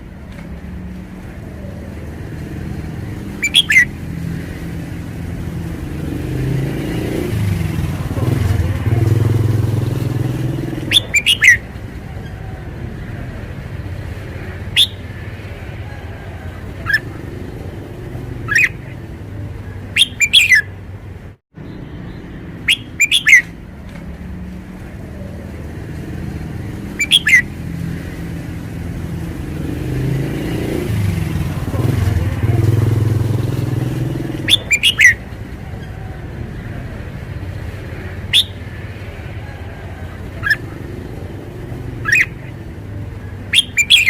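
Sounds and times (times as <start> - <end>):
low rumble of road traffic: 0.0 - 44.0
bird singing whistled phrases: 3.4 - 3.9, 10.9 - 11.6, 14.7 - 15.0, 18.5 - 18.8, 20.0 - 20.7, 22.6 - 23.5, 27.0 - 27.5, 34.4 - 35.2, 38.3 - 38.6, 42.0 - 42.4, 43.5 - 44.0.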